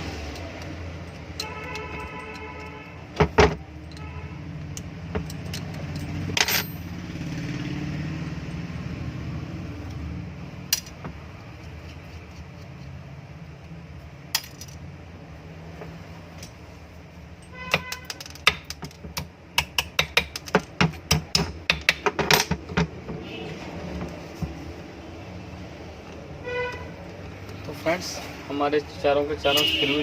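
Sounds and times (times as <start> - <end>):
metal tools clinking on housing: 0.4 - 4.1, 4.7 - 7.0, 14.3 - 14.8, 21.4 - 22.9.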